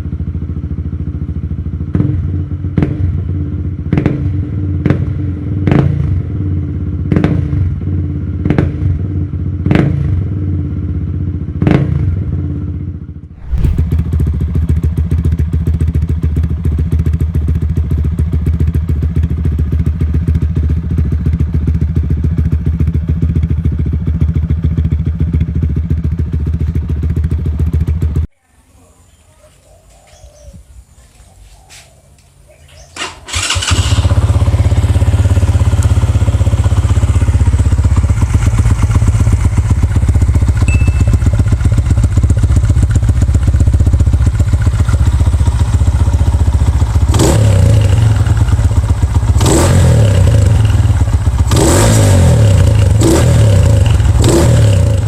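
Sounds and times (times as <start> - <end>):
motorcycle engine revving: 13.4 - 28.2, 32.9 - 55.0.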